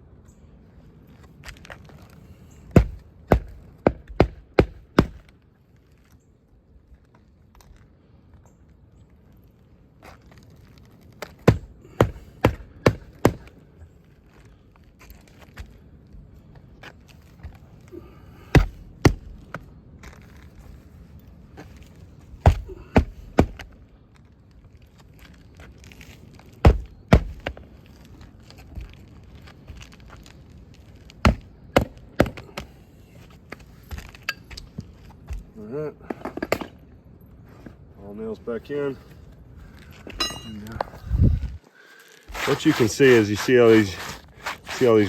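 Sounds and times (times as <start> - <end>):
hammer striking nails: 2.7 - 5.3, 11.4 - 13.5, 18.5 - 19.4, 22.4 - 23.7, 26.6 - 27.6.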